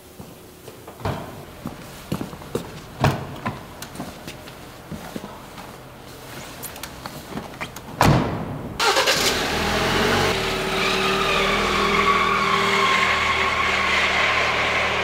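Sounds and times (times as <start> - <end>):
car door slamming: 8.0 - 8.6
car engine starting and idling: 8.6 - 11.8.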